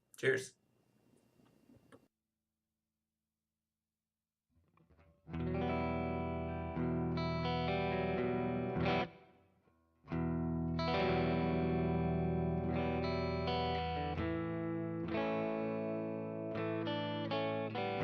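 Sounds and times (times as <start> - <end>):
electric guitar chordal riff: 4.8 - 9.4, 10.1 - 18.0.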